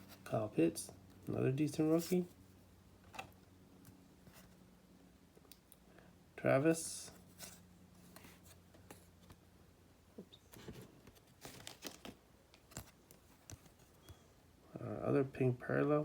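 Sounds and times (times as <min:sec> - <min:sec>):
trading cards clicking and rustling: 0:10.5 - 0:14.2.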